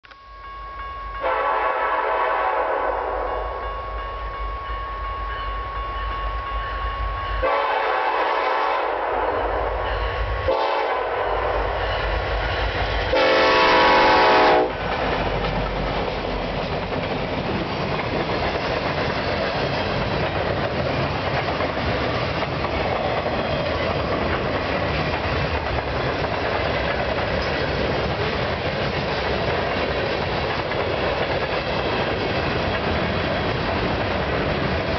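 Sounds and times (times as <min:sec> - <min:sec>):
train rumbling and clattering past: 0:00.4 - 0:34.9
locomotive air horn blasts: 0:01.2 - 0:03.6, 0:07.4 - 0:09.7, 0:10.5 - 0:11.7, 0:13.1 - 0:14.8.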